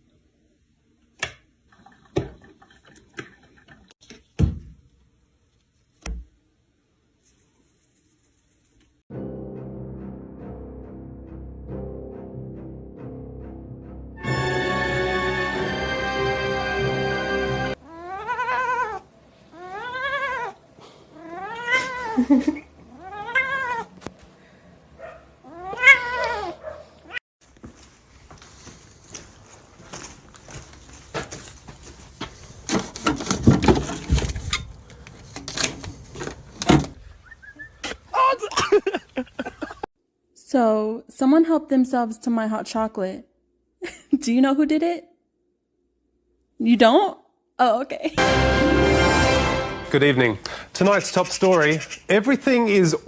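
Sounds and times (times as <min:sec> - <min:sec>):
cat yowling: 0:17.8 - 0:20.6, 0:21.2 - 0:22.3, 0:22.9 - 0:23.9, 0:25.4 - 0:27.2.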